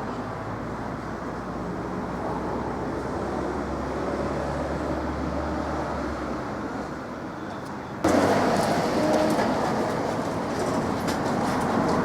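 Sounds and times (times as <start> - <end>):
tram running rumble: 8.0 - 12.0.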